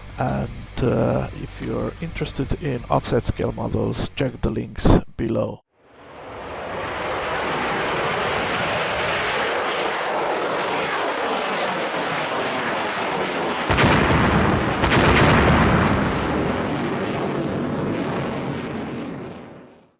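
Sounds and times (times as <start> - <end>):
loud rushing noise: 5.9 - 12.8, 13.4 - 18.9
heavy booms: 12.7 - 19.9.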